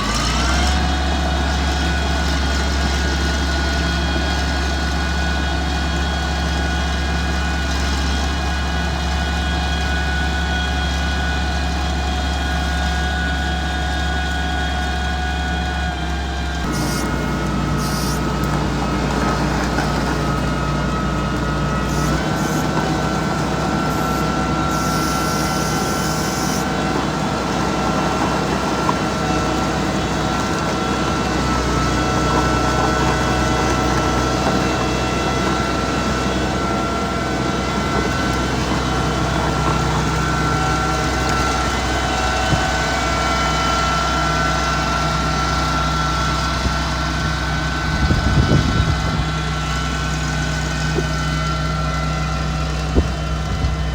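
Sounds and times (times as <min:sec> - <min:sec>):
diesel engine running: 0:00.0 - 0:53.9
high whine: 0:16.6 - 0:26.9.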